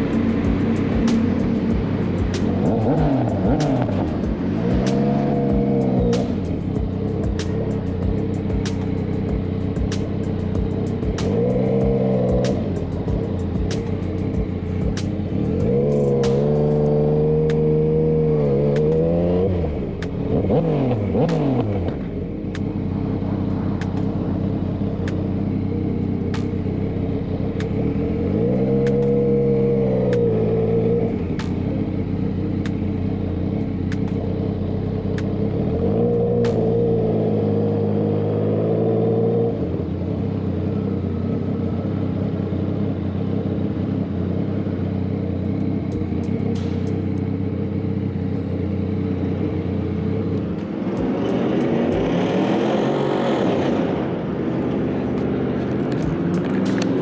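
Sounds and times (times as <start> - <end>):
engine revving: 0.0 - 57.0
vehicle engines idling: 0.0 - 57.0
vehicle passing by: 49.8 - 57.0.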